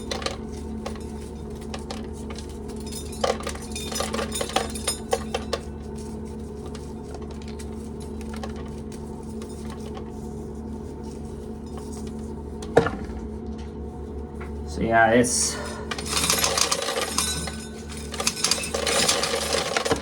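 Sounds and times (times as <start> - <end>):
electric fan humming: 0.0 - 20.0
corn kernels clicking and rattling: 15.9 - 20.0.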